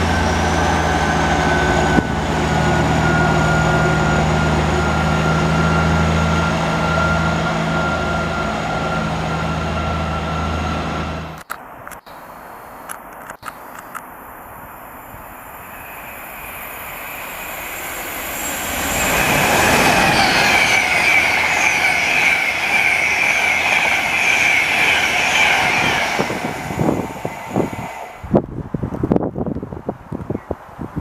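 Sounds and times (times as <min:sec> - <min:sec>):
train passing: 0:00.0 - 0:29.3
wheel squeal: 0:15.6 - 0:27.0.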